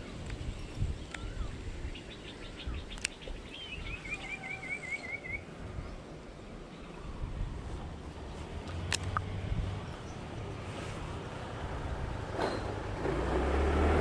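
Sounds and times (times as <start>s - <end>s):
wind rumble on microphone: 0.0s - 4.2s, 5.5s - 14.0s
birds calling: 0.0s - 7.2s.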